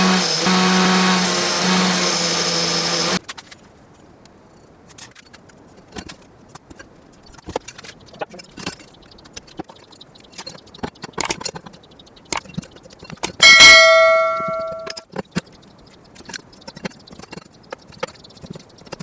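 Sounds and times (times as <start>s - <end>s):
workshop parts clicking and tapping: 4.9s - 19.0s
loud ringing metallic clang: 13.4s - 15.0s.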